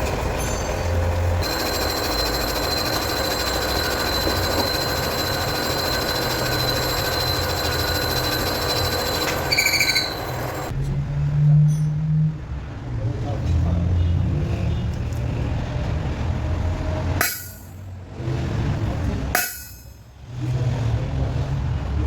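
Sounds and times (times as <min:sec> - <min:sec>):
lathe squealing: 0:00.0 - 0:10.7
metal lathe cutting steel: 0:00.0 - 0:10.7, 0:17.2 - 0:17.8.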